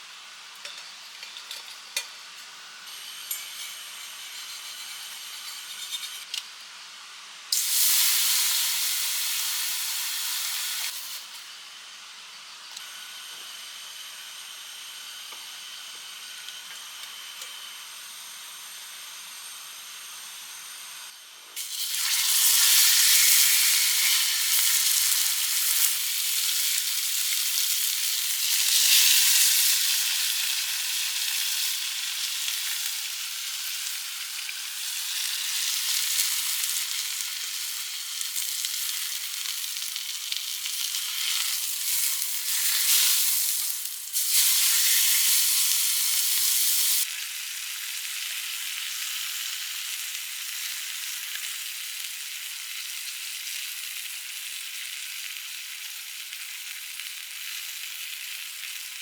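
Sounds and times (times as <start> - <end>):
steak sizzling in a pan: 0.2 - 11.5, 21.6 - 59.0.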